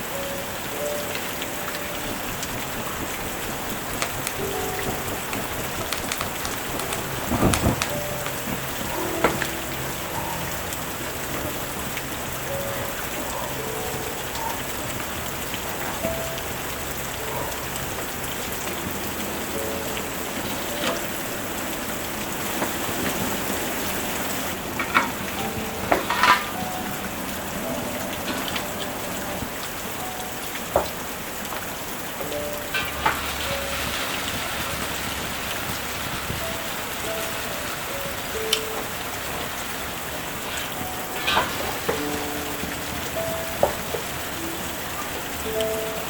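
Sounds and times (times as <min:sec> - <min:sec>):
steady rainfall: 0:00.0 - 0:46.0
drip-like ticks and knocks: 0:01.2 - 0:23.3, 0:24.5 - 0:33.6, 0:37.9 - 0:45.8.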